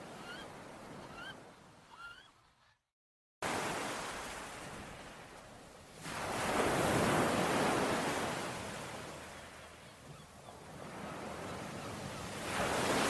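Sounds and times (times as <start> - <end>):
ocean waves washing: 3.4 - 13.0.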